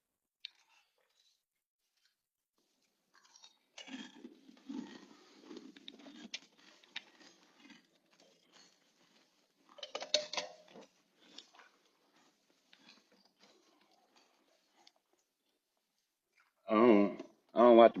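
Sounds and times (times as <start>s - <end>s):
person chewing crunchy snack: 2.0s - 15.6s.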